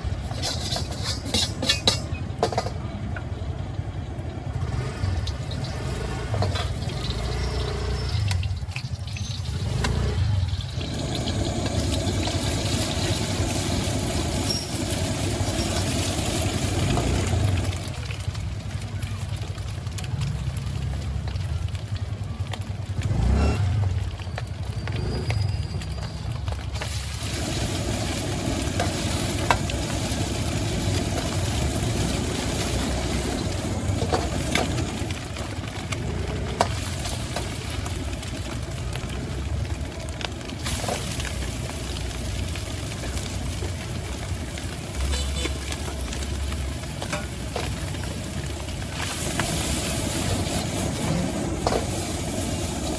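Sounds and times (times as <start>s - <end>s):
stir-fry sizzling in wok: 0.0s - 52.9s
metal spatula clinking wok: 0.2s - 2.8s.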